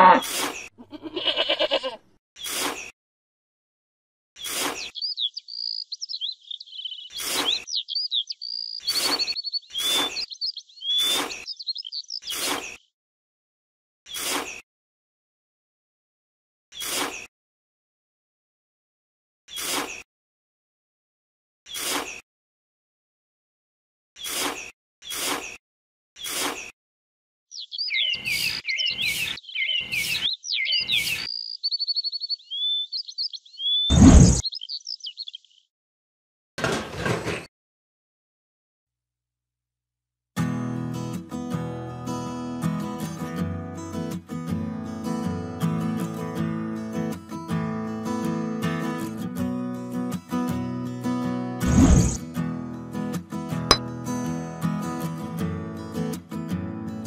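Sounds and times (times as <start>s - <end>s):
trowel scraping sand: 0.1s - 0.7s, 2.4s - 2.9s, 4.4s - 5.0s, 7.1s - 7.7s, 8.9s - 10.2s, 12.3s - 12.8s, 14.1s - 14.6s, 16.8s - 17.3s, 19.5s - 20.0s, 21.7s - 22.2s, 24.2s - 25.6s, 26.2s - 26.7s, 33.9s - 34.4s, 51.6s - 52.2s
birds chirping: 4.4s - 12.8s, 27.5s - 35.7s.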